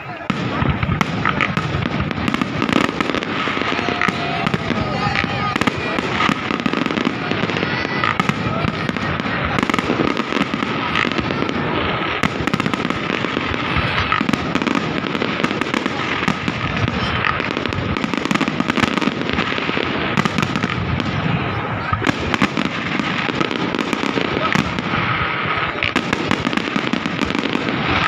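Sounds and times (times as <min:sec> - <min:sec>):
fireworks bangs and crackling: 0:00.0 - 0:28.0.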